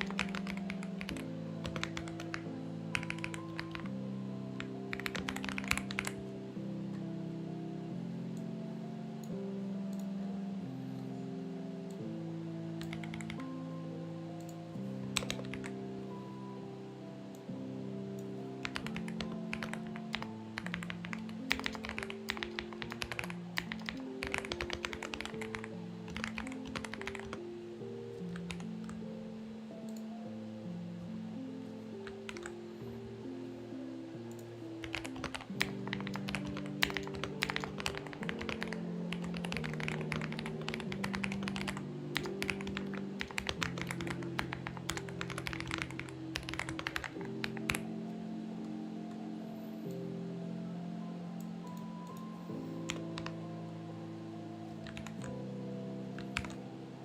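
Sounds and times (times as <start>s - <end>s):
mechanical keyboard typing: 0.0s - 4.0s, 4.6s - 6.3s, 12.8s - 13.4s, 14.4s - 15.8s, 18.6s - 27.4s, 28.3s - 29.0s, 32.0s - 32.6s, 34.3s - 47.9s, 52.9s - 53.4s, 54.8s - 55.4s, 56.2s - 56.6s
soft background music: 0.0s - 57.0s.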